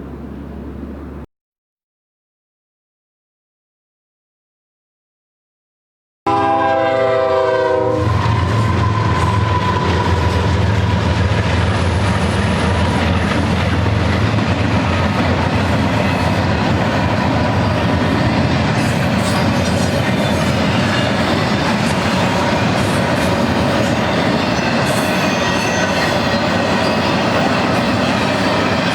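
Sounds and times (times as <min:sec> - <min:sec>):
locomotive air horn: 0:06.3 - 0:10.3
train rumbling past: 0:06.3 - 0:28.9.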